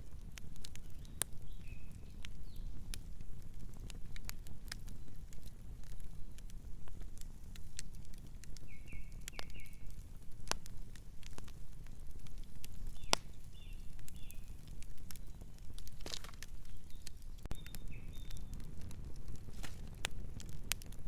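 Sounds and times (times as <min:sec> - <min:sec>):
wood fire crackling and popping: 0:00.0 - 0:21.0
bird chirping: 0:08.6 - 0:09.9, 0:12.8 - 0:14.6, 0:15.2 - 0:18.6.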